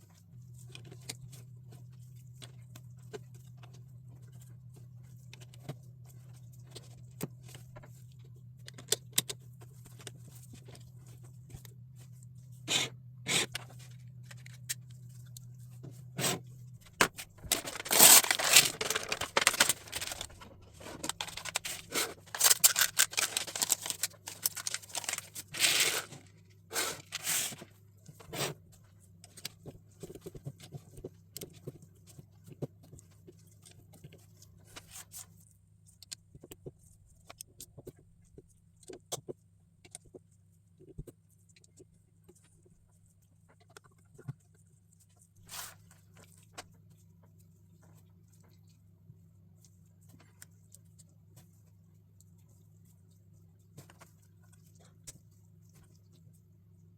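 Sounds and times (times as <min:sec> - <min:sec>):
scraping and rustling: 0:17.0 - 0:28.6.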